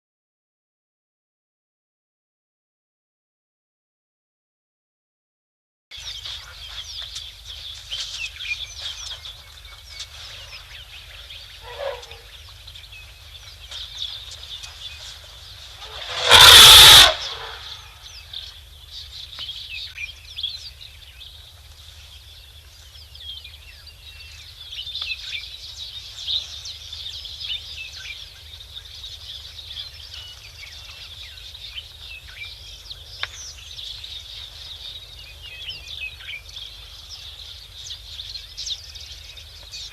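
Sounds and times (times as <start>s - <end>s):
birds chirping: 6.0s - 21.4s
elephant trumpeting: 11.6s - 12.3s, 15.8s - 17.9s.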